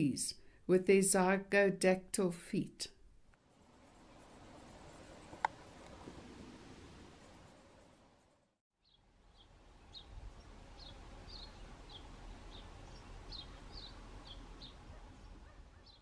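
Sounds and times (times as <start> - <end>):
outdoor background noise: 0.0 - 16.0
small bird chirping: 8.8 - 16.0.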